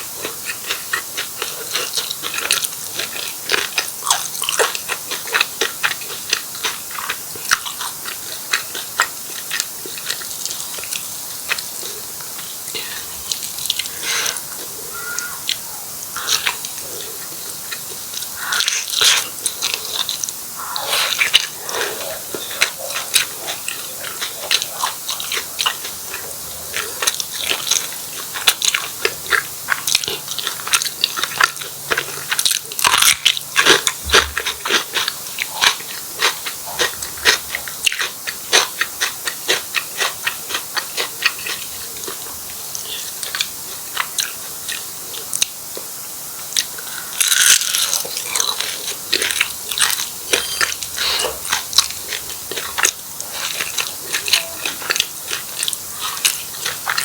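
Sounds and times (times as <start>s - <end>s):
chewing: 0.0s - 57.0s
crunchy bites into pastry: 46.6s - 53.0s.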